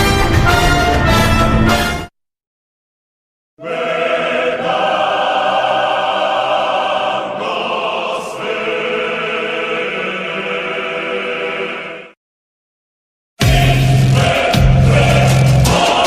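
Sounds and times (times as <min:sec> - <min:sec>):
choir singing sustained chords: 0:03.6 - 0:12.2, 0:13.4 - 0:16.0.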